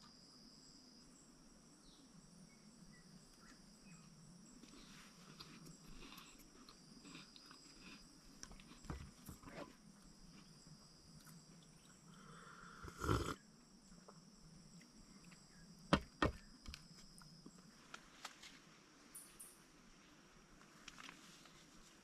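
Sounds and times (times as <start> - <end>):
insects chirring: 0.0 - 22.0
handling knocks and thumps: 15.9 - 16.8.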